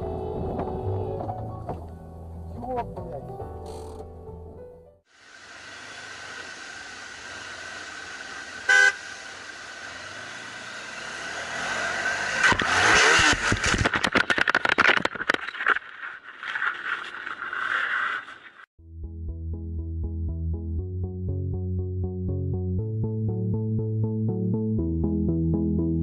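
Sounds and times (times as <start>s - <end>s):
road noise inside moving car: 0.0s - 1.4s
car horn toot: 8.7s - 9.1s.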